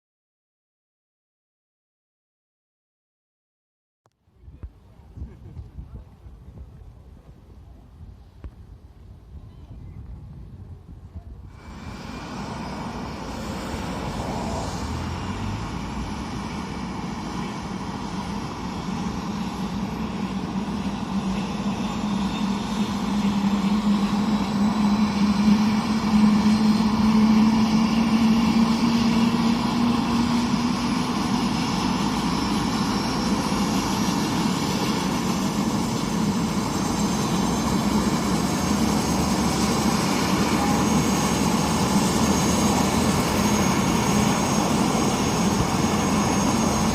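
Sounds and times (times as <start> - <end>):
helicopter engine and rotor: 11.5 - 46.9.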